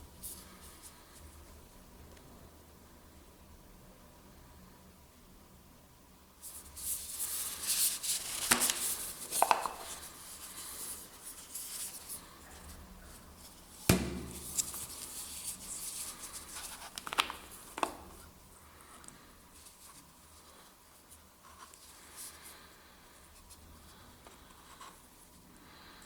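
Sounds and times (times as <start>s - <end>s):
packaging scraping and rustling: 7.0s - 13.6s.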